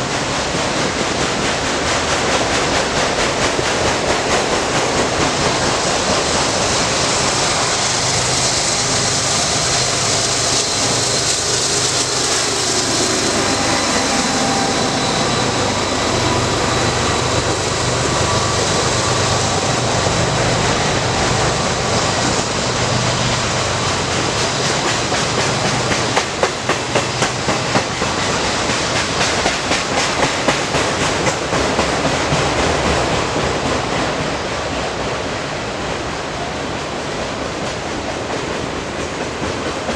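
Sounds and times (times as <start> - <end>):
freight train rumbling past: 0.0 - 39.9
wheels clickety-clack on rails: 0.0 - 39.9.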